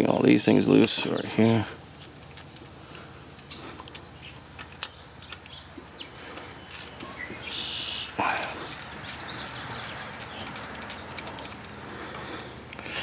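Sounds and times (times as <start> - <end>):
socket wrench clicking: 6.7 - 7.3, 8.4 - 11.8.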